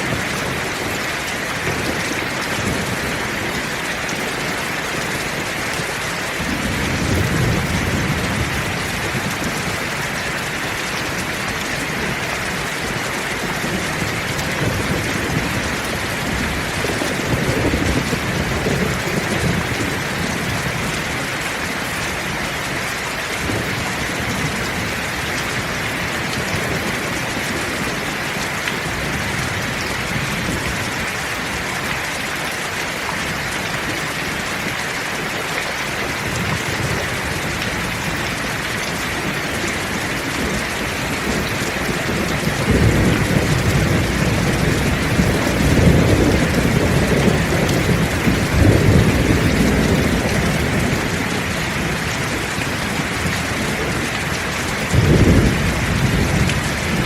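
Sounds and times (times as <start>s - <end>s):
heavy rain hissing: 0.0s - 57.0s
low thunder rumbling: 1.8s - 21.2s, 36.2s - 57.0s.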